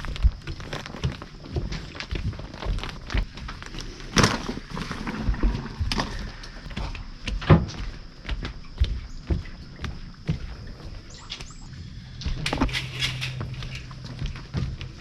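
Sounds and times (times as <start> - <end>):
objects knocking and clunking: 12.2 - 15.0.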